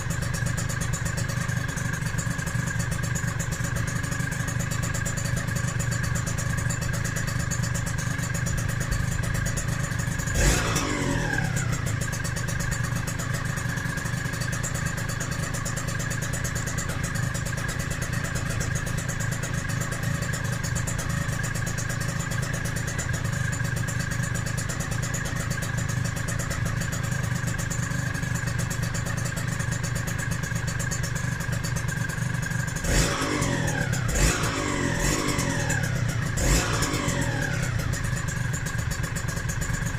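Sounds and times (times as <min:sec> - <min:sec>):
two-stroke engine idling with blips: 0:00.0 - 0:39.9.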